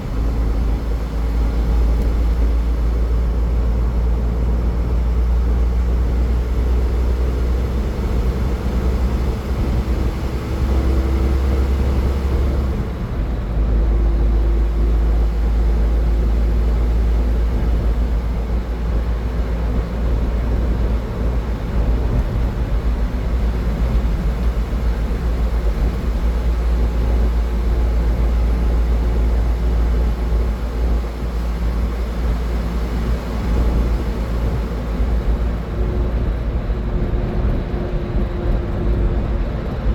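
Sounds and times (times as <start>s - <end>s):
faint engine drone: 0.0s - 39.9s.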